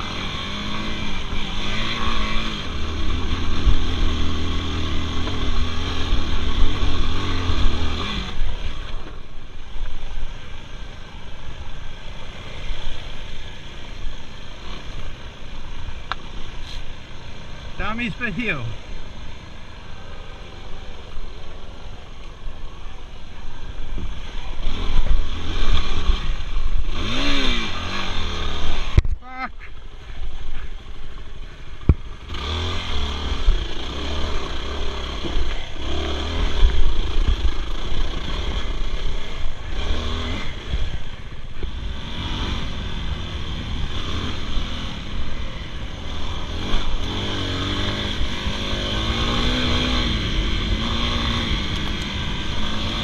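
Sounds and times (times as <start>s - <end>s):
dirt bike engine revving: 0.0s - 9.2s, 24.0s - 29.6s, 32.1s - 53.0s.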